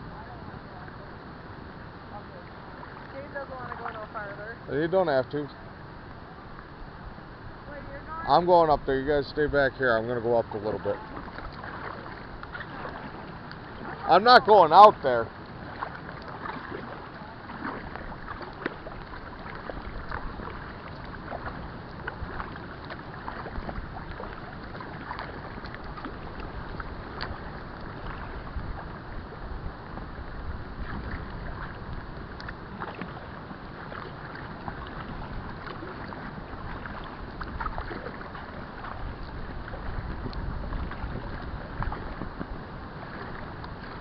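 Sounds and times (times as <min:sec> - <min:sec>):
water lapping and splashing: 0:00.0 - 0:44.0
wind rumble on microphone: 0:15.1 - 0:44.0.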